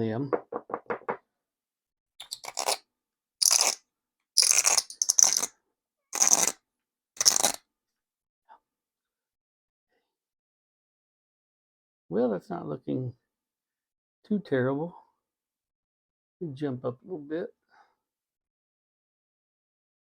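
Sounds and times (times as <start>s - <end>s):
gritty scraping in pipe bowl: 2.2s - 2.8s, 3.4s - 3.8s, 4.4s - 5.5s, 6.2s - 6.5s, 7.2s - 7.6s.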